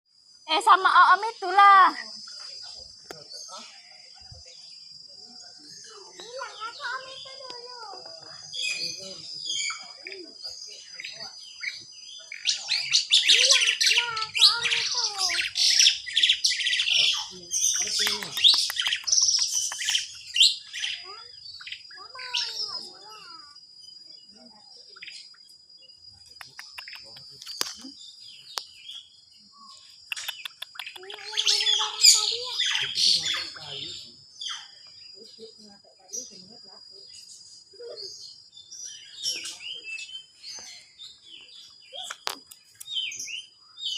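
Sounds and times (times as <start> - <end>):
birds chirping: 0.2 - 43.9.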